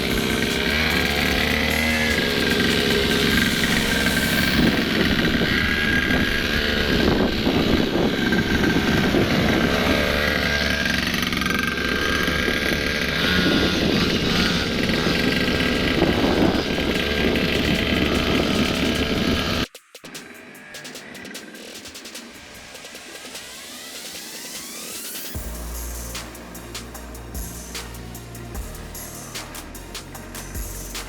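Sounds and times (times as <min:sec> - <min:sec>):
motorcycle engine running: 0:00.0 - 0:19.7.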